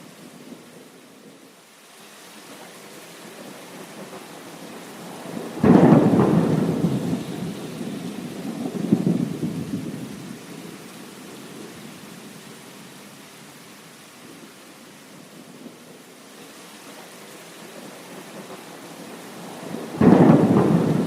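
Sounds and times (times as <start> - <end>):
steady rain: 0.0 - 21.0
thunder clap rumbling: 4.0 - 10.8, 17.8 - 21.0.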